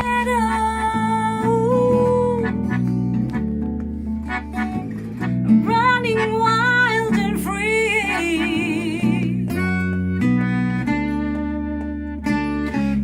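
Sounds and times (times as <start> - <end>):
strummed guitar chords: 0.0 - 13.0
person singing wavering notes: 5.6 - 9.5.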